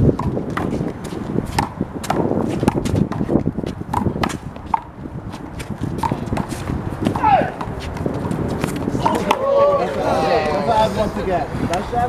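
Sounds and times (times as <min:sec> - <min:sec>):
footsteps on court: 0:00.1 - 0:10.0.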